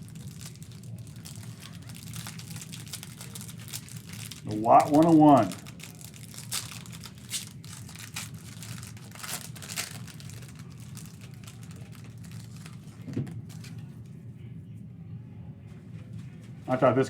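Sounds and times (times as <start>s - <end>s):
packaging crinkling: 0.0s - 14.1s.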